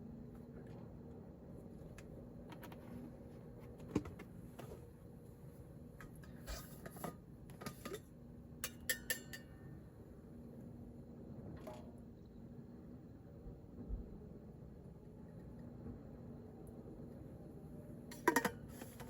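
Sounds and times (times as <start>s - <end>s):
faint steady hum: 0.0s - 19.0s
dishes and utensils clinking: 6.4s - 9.5s.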